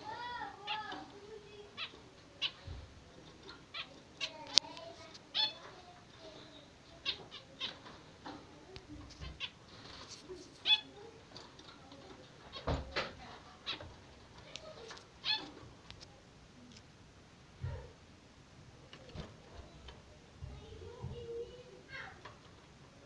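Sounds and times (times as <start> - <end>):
budgerigars chirping and chattering: 0.2 - 4.6, 5.2 - 5.7, 6.8 - 8.4, 9.1 - 12.8, 13.4 - 15.7.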